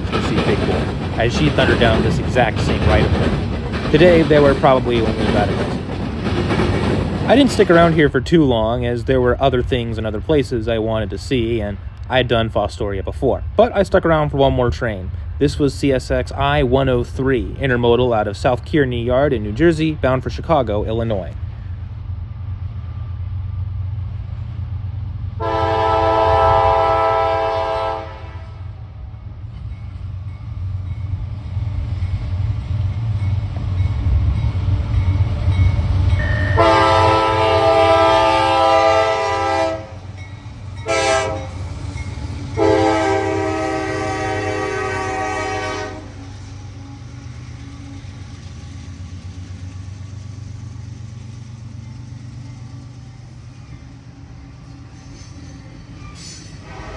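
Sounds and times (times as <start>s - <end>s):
low rumble of train: 0.0s - 56.9s
train air horn: 25.4s - 28.6s, 36.2s - 40.1s, 40.8s - 41.6s, 42.6s - 46.3s, 56.2s - 56.9s.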